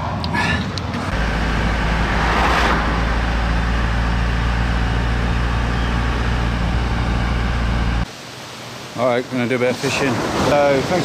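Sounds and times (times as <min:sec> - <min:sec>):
van engine running: 0:01.0 - 0:08.1.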